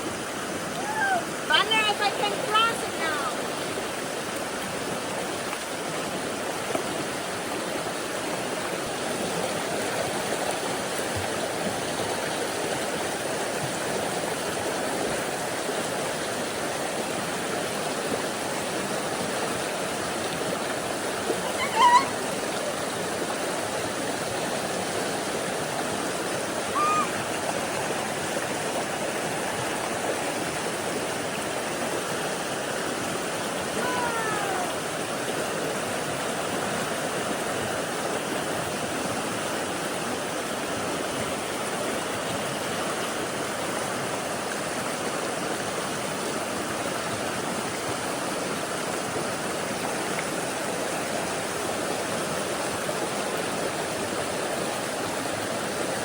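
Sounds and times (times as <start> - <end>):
creek rushing: 0.0 - 56.0
short high-pitched calls: 21.4 - 22.2, 26.7 - 27.2.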